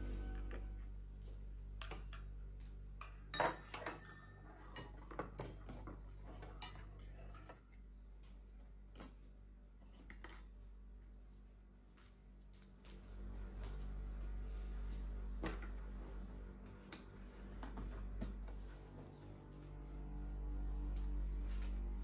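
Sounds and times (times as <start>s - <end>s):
tableware clinking: 3.3s - 7.7s.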